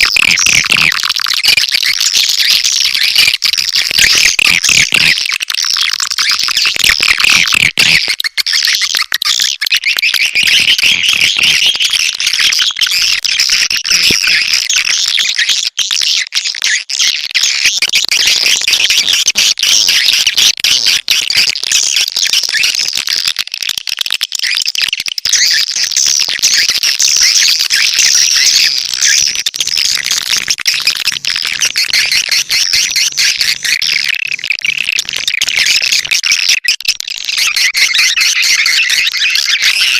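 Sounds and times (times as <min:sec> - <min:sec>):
swiftlets chirping and twittering: 0:00.0 - 0:15.5, 0:25.3 - 0:39.9.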